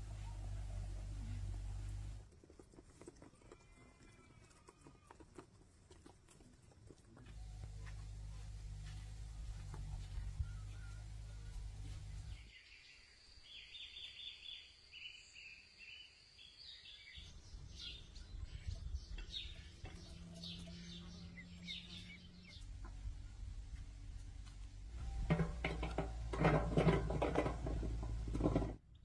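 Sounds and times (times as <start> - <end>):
birds chirping: 7.3 - 23.5.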